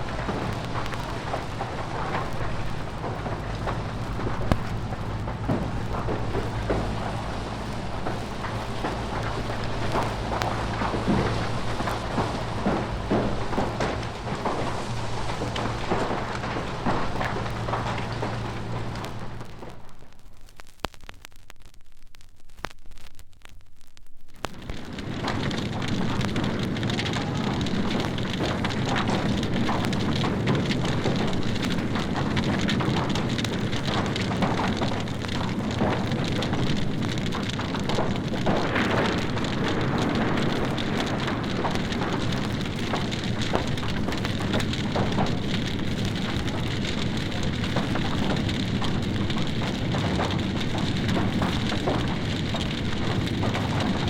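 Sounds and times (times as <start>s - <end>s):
water spraying from hoses: 0.0s - 19.3s
fire crackling: 0.0s - 54.0s.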